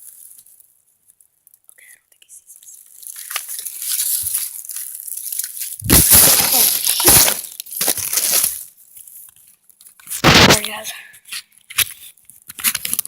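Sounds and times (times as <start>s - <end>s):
rustling through dry brush: 2.6s - 9.3s.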